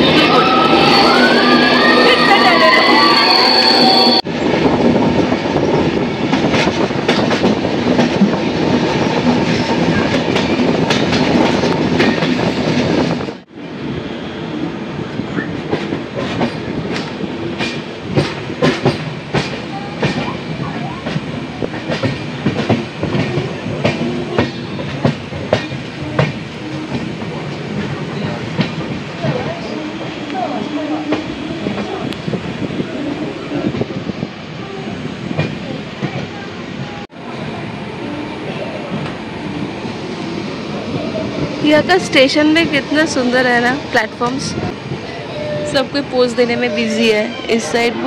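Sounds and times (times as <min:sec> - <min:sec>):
train wheels rumbling on rails: 0:00.0 - 0:48.0
clickety-clack of rail joints: 0:04.6 - 0:13.4, 0:15.3 - 0:32.5, 0:35.3 - 0:37.1.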